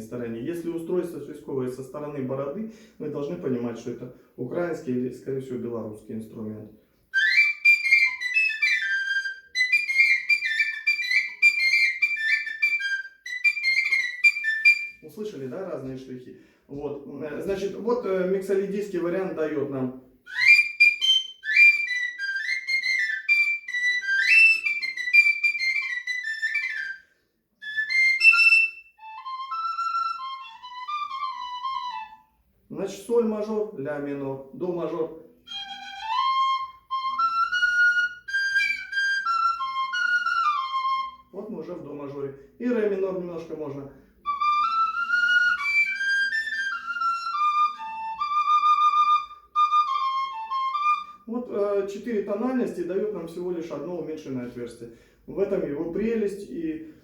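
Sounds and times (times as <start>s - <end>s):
whistle flute playing a lively tune: 7.1s - 15.2s, 20.3s - 32.4s, 35.4s - 41.4s, 44.2s - 51.4s.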